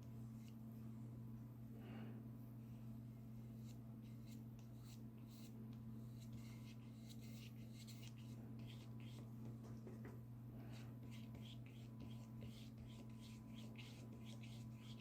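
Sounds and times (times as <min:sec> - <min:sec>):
steady low hum: 0:00.0 - 0:15.0
paintbrush strokes on paper: 0:03.6 - 0:09.4, 0:10.7 - 0:15.0.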